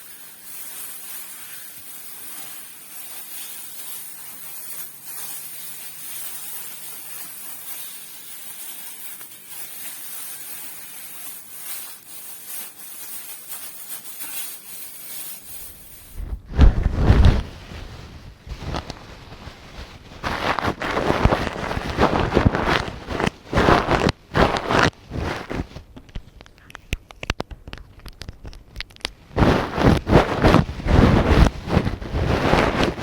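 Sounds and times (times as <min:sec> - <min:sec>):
gloved hands rubbing: 0:00.0 - 0:33.0
muffled rumbling of microphone: 0:16.2 - 0:23.2.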